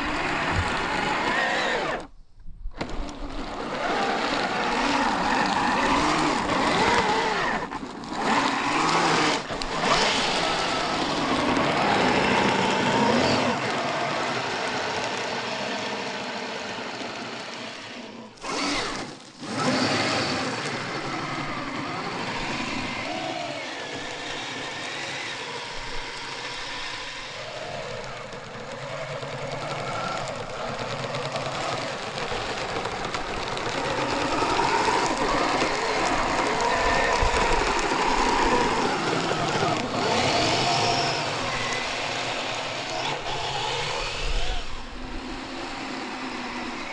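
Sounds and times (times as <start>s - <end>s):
electric motor whine: 0.0s - 46.9s.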